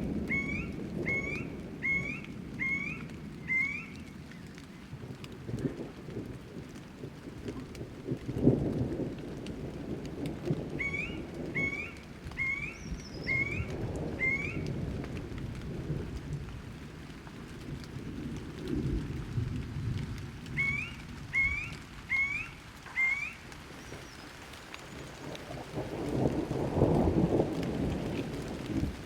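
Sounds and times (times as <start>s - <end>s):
low rolling thunder: 0.0s - 22.7s, 24.9s - 29.0s
rain: 0.0s - 29.0s
bird calling in rising notes: 0.3s - 4.1s, 10.8s - 14.6s, 20.6s - 24.2s.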